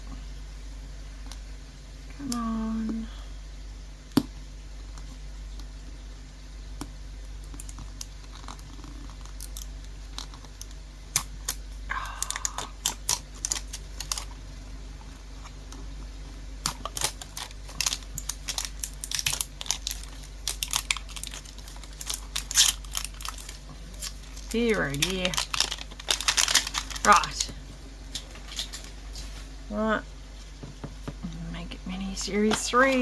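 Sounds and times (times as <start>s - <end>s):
fan humming: 0.0s - 33.0s
plastic packaging being torn: 12.2s - 14.4s, 16.6s - 29.0s.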